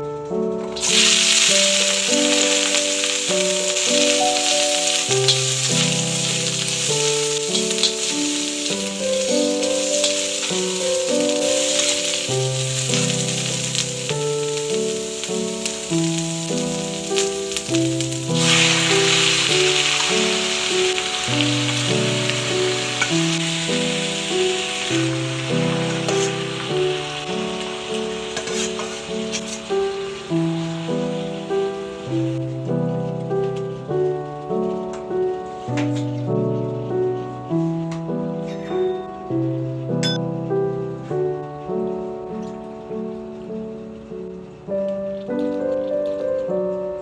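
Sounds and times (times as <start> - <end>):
gentle piano music: 0.0 - 47.0
onion sizzling in hot oil: 0.7 - 34.7.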